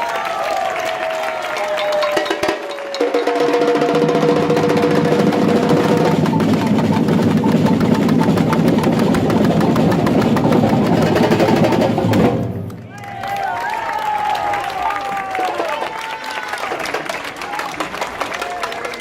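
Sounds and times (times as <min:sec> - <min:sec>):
samba drums: 0:01.2 - 0:13.8
sharp wood-block hits: 0:01.8 - 0:03.9, 0:04.6 - 0:12.4.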